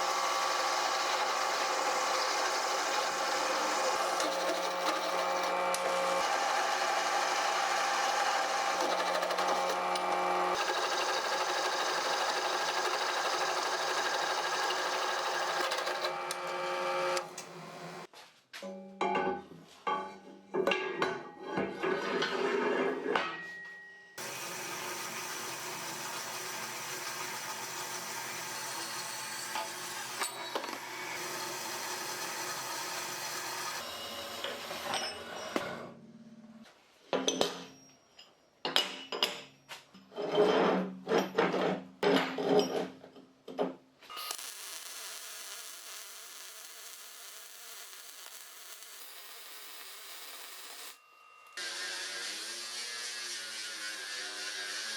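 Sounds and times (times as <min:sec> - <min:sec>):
power tool running: 0:00.0 - 0:18.1, 0:24.2 - 0:35.6, 0:44.1 - 0:54.9.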